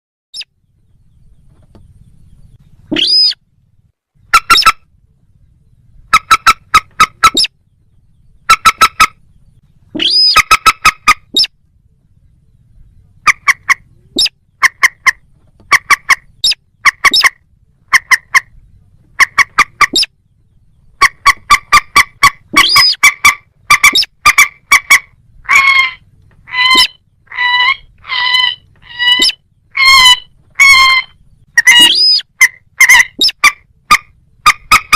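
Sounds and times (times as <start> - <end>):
harsh bird calls: 0.3 - 3.4, 4.2 - 34.9
bird calls clipped notes: 2.8 - 3.4, 4.2 - 4.8, 6.1 - 7.6, 8.4 - 9.2, 9.9 - 11.6, 13.2 - 20.1, 20.8 - 34.9.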